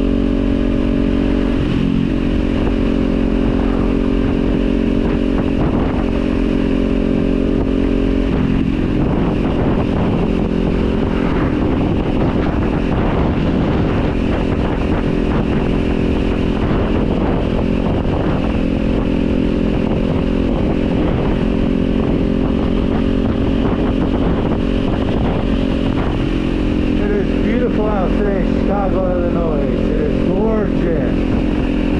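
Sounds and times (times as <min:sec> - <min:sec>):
motorcycle engine running: 0:00.0 - 0:31.9.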